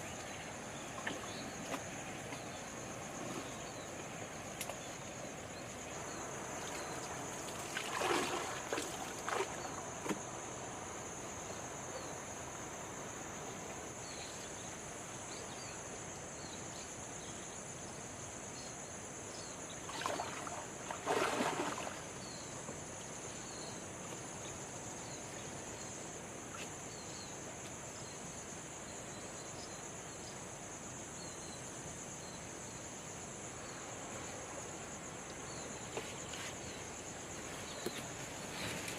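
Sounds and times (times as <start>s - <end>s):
high insect drone: 0.0s - 38.9s
water sloshing and splashing: 0.9s - 2.5s, 6.5s - 10.2s, 19.8s - 22.2s.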